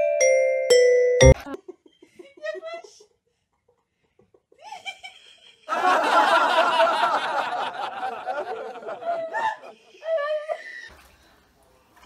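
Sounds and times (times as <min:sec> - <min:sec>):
loud human laughter: 0:03.6 - 0:10.8.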